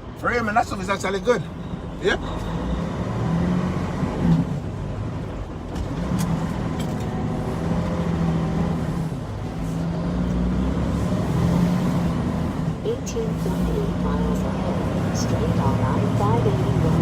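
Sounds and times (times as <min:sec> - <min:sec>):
road noise: 0:00.0 - 0:17.0
truck diesel engine driving: 0:00.0 - 0:17.0.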